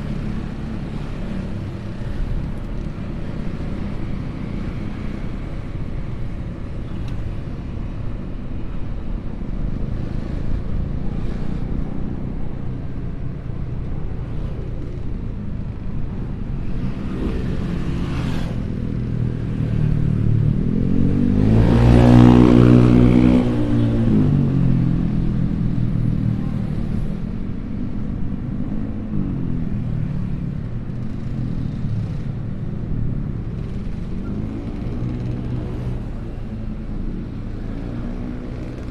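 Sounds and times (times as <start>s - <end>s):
road traffic passing: 0.0s - 38.9s
loud engine passing close: 19.8s - 25.5s.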